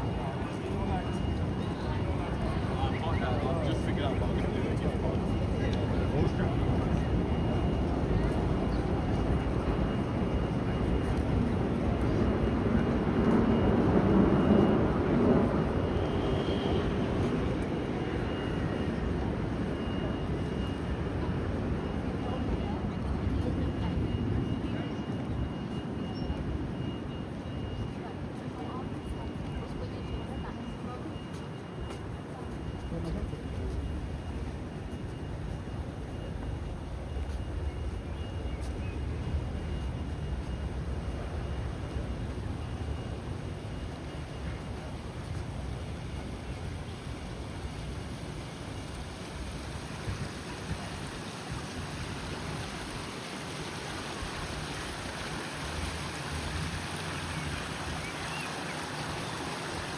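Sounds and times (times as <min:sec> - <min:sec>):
city rumble: 0:00.0 - 0:59.9
low rumble of passing traffic: 0:32.7 - 0:59.9.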